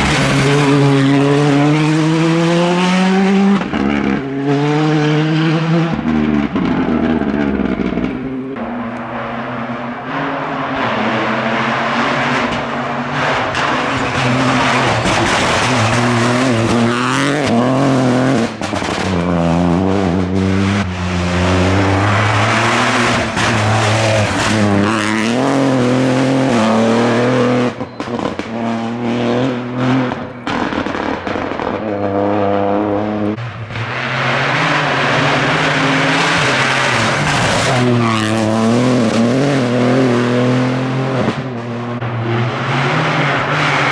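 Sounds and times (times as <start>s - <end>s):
exhaust cracks: 0.0s - 43.9s
rally car engine accelerating: 0.0s - 43.9s.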